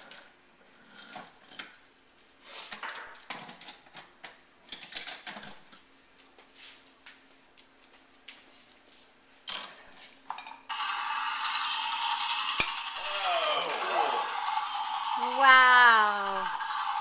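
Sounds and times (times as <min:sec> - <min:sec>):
toy train pieces clattering: 0:10.7 - 0:17.0.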